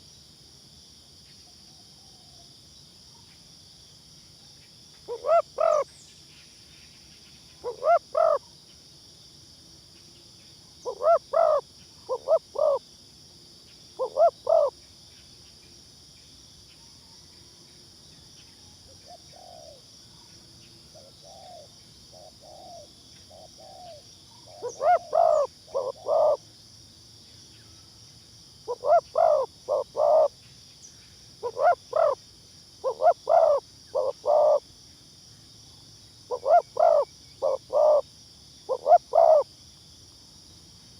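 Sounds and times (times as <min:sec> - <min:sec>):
high insect drone: 0:00.0 - 0:40.9
dove cooing: 0:05.1 - 0:05.9, 0:07.6 - 0:08.4, 0:10.9 - 0:12.8, 0:14.0 - 0:14.7, 0:19.0 - 0:19.8, 0:21.0 - 0:26.4, 0:28.7 - 0:30.3, 0:31.4 - 0:32.2, 0:32.8 - 0:34.6, 0:36.3 - 0:38.0, 0:38.7 - 0:39.4
fainter lower dove coos: 0:05.1 - 0:05.9, 0:07.6 - 0:08.4, 0:10.9 - 0:12.8, 0:14.0 - 0:14.7, 0:21.0 - 0:26.4, 0:28.7 - 0:30.3, 0:31.4 - 0:32.2, 0:32.8 - 0:34.6, 0:36.3 - 0:38.0, 0:38.7 - 0:39.4.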